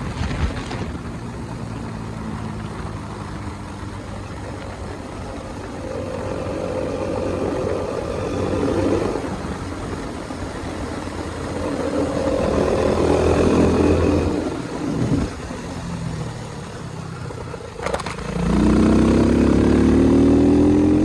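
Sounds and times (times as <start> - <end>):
motorcycle engine revving and idling: 0.0 - 21.0.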